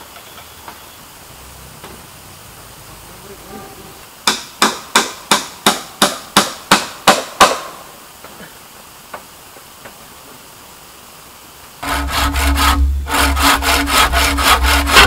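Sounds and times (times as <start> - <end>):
hand tool striking bamboo: 4.2 - 7.8, 11.8 - 15.0.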